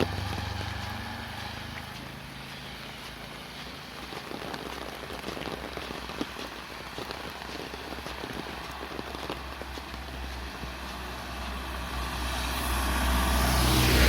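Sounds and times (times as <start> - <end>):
raindrops pattering: 0.0 - 14.0.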